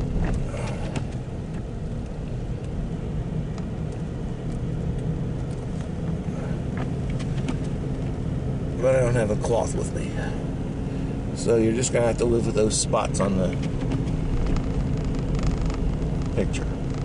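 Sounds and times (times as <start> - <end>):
car engine and road noise: 0.0 - 17.0
faint clicks and knocks: 13.4 - 17.0.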